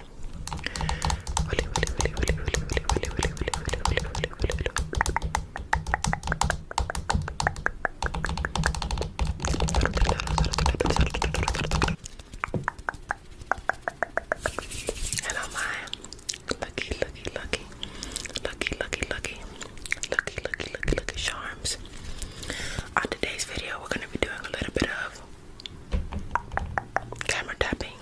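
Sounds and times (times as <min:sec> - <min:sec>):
fingernail tapping on camera: 0:00.5 - 0:15.3.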